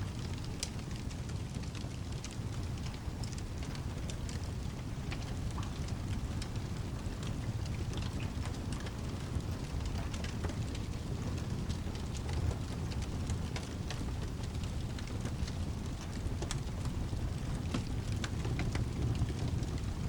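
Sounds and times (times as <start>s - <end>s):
constant low rumble: 0.0s - 20.0s
steady rain: 0.0s - 20.0s
wood fire crackling: 0.0s - 20.0s.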